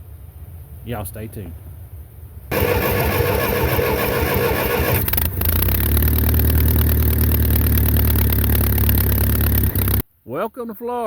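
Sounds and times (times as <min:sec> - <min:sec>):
tractor engine cranking: 0:02.5 - 0:10.0
tractor engine idling: 0:02.5 - 0:10.0.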